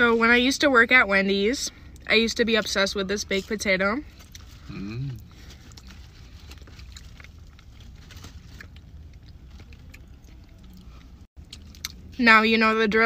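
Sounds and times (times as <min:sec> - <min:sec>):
soft chewing: 0:04.0 - 0:12.1.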